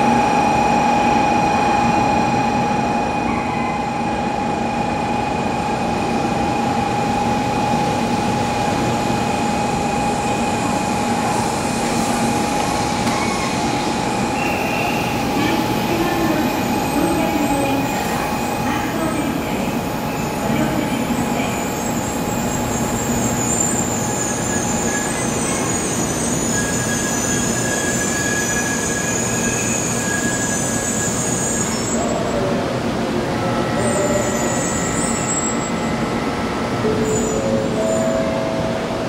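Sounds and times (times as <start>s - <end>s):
train rumbling: 0.0s - 39.0s
high brake squeal: 13.1s - 16.3s, 21.7s - 32.3s, 33.6s - 35.9s, 36.9s - 38.3s.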